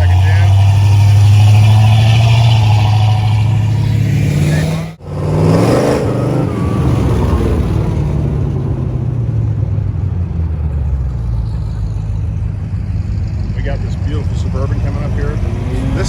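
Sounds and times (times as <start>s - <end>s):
car engines rumbling past: 0.0s - 16.0s.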